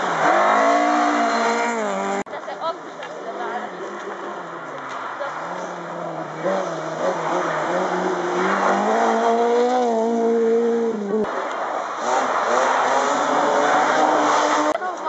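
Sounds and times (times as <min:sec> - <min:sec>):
rally car engine revving past: 0:00.0 - 0:02.2, 0:05.3 - 0:11.3
second car engine: 0:00.0 - 0:15.0.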